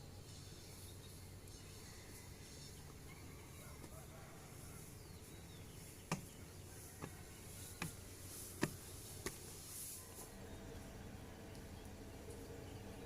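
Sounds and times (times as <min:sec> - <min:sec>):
sharp taps: 0:06.1 - 0:06.3.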